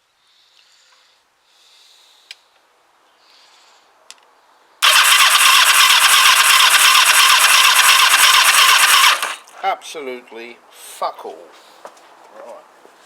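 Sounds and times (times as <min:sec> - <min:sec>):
starter motor cranking engine: 0:04.8 - 0:09.5.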